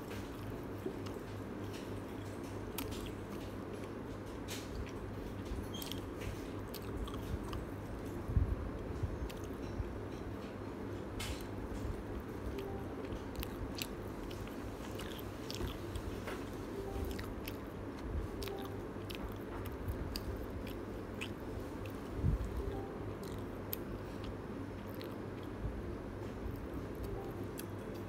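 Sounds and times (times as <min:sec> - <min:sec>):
chewing and biting: 0:00.1 - 0:07.7, 0:12.5 - 0:25.6.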